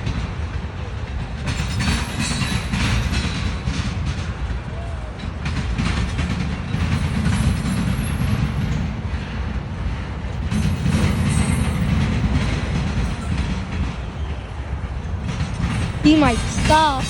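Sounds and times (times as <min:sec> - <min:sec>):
freight train wheels rumbling: 0:00.0 - 0:17.0
rail joint clicks: 0:00.0 - 0:17.0
wheel squeals: 0:10.5 - 0:14.6.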